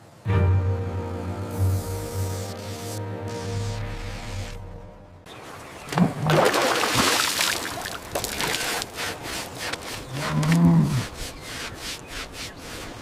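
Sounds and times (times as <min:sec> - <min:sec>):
bull lowing: 0:10.1 - 0:11.2.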